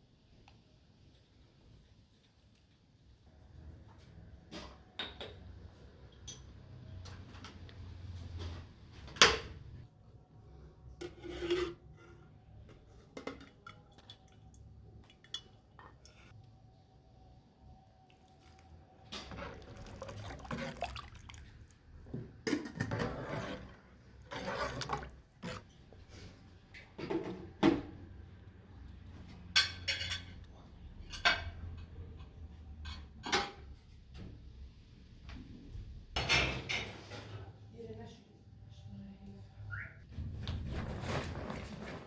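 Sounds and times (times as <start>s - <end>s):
liquid sloshing: 18.2s - 21.9s
utensil scraping: 22.9s - 25.7s
metal utensils clinking on pot: 29.5s - 31.8s.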